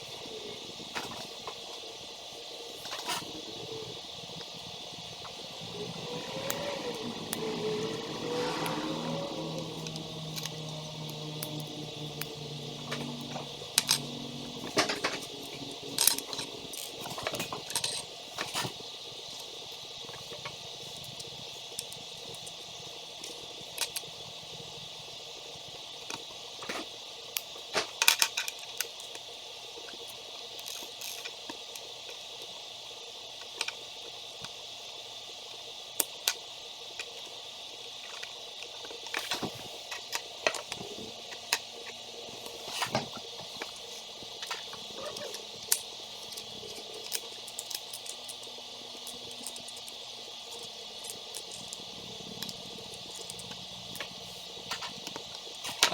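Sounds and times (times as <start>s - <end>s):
steady hiss: 0.0s - 22.6s.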